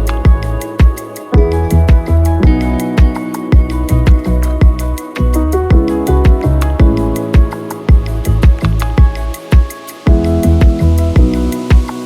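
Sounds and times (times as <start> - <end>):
background music with steady beat: 0.0 - 12.0
kick drum hits: 0.2 - 4.8, 5.7 - 11.9.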